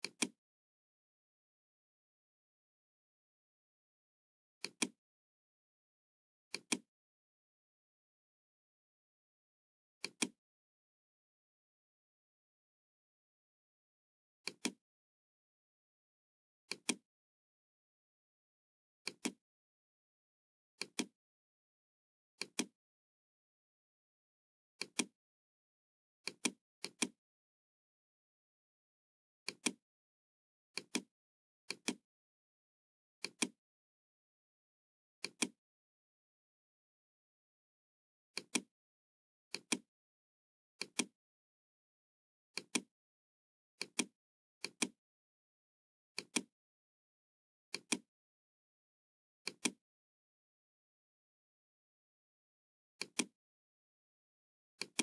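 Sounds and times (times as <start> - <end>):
computer mouse clicks: 0.0 - 0.4, 4.6 - 5.0, 6.5 - 6.8, 10.0 - 10.4, 14.4 - 14.8, 24.8 - 25.1, 26.3 - 27.2, 29.5 - 29.8, 30.8 - 31.1, 31.7 - 32.0, 33.2 - 33.6, 35.2 - 35.6, 38.4 - 38.7, 39.5 - 39.8, 40.8 - 41.1, 42.6 - 42.9, 43.8 - 45.0, 46.2 - 46.5, 47.7 - 48.0, 49.4 - 49.8, 53.0 - 53.3, 54.8 - 55.0.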